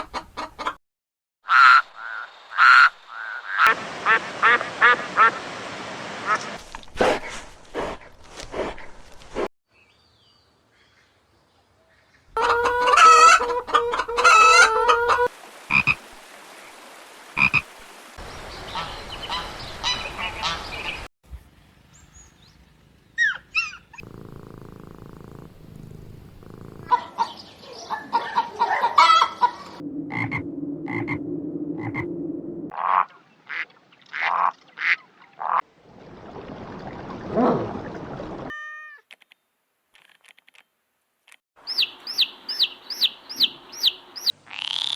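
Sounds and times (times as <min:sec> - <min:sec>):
frogs croaking: 0:15.7 - 0:16.1, 0:17.4 - 0:17.7.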